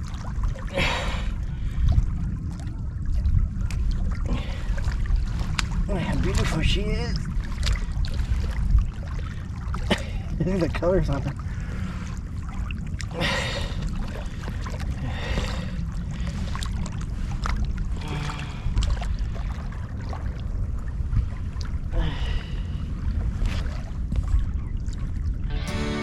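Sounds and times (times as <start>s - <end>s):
water splashing: 0.0s - 24.3s
wind rumbling on microphone: 0.0s - 25.7s.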